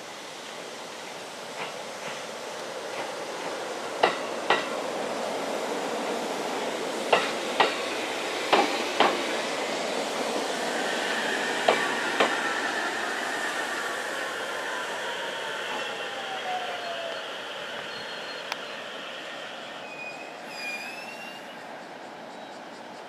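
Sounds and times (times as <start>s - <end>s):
train rolling noise: 0.0s - 23.0s
train wheels clacking on rail joint: 2.9s - 4.8s, 7.1s - 7.8s, 8.5s - 9.3s, 11.6s - 12.4s.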